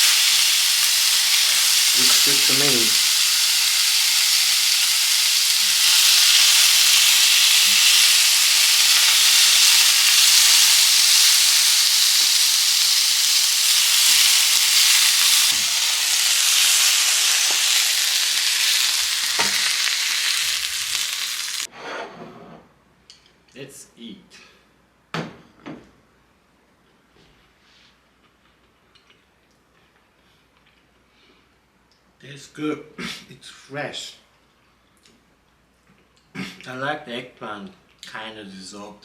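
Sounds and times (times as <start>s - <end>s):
food sizzling in a pan: 0.0s - 21.7s.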